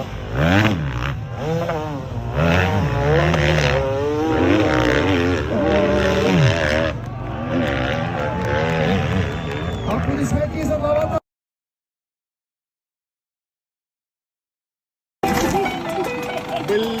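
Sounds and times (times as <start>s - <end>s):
dirt bike engine revving: 0.0s - 10.3s.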